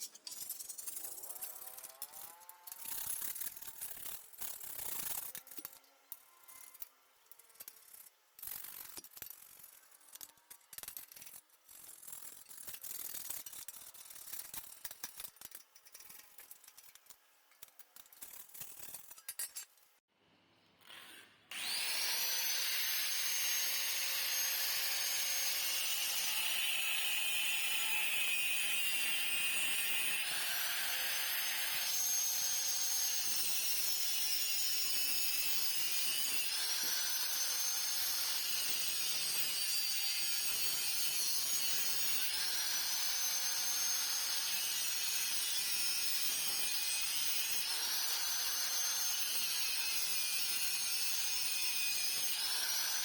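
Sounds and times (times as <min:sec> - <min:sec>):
power tool whining: 0:20.8 - 0:28.3.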